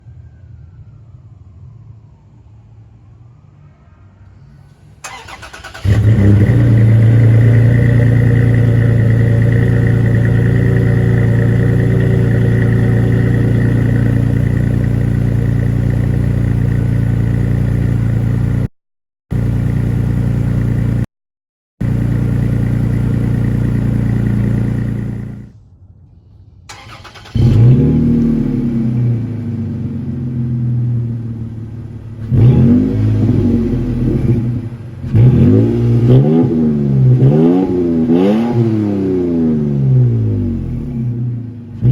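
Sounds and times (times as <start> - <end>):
engine revving: 5.0 - 18.7, 21.8 - 25.5, 26.7 - 41.9
truck exhaust idling: 5.1 - 18.7, 21.8 - 25.6.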